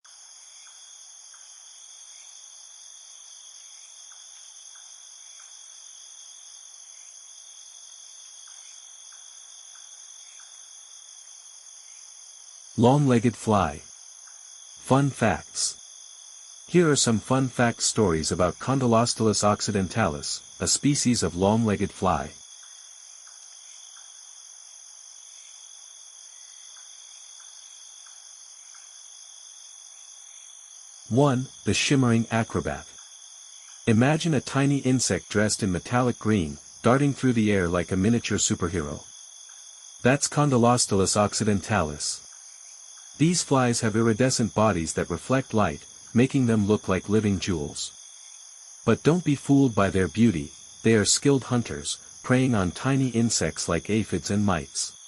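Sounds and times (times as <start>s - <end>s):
crickets trilling: 0.0s - 55.0s
faint soft ticks: 4.1s - 5.5s, 8.4s - 10.6s, 22.6s - 24.1s, 26.8s - 28.9s.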